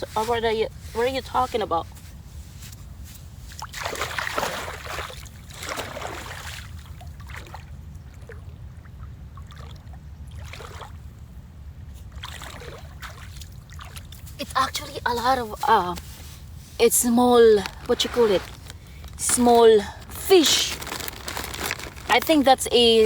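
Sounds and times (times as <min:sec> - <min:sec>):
paddle splashing through water: 0:03.6 - 0:08.4, 0:12.1 - 0:14.2.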